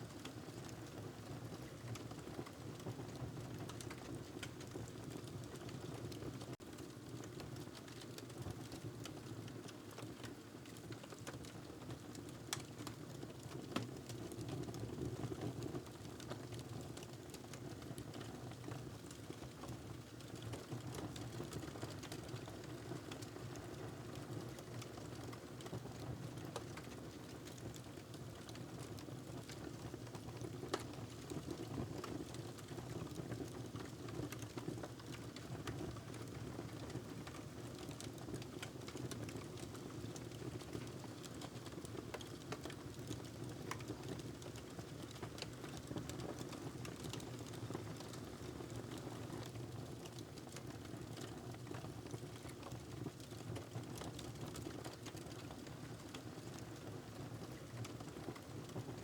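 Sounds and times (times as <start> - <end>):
wood fire crackling: 30.4 - 30.9, 37.3 - 49.0.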